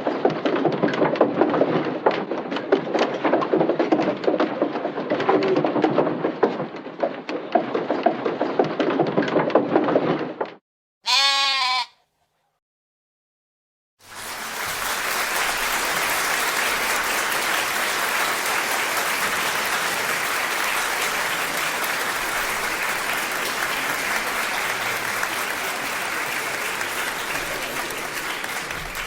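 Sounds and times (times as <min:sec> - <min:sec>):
crowd applauding: 0:14.0 - 0:29.0.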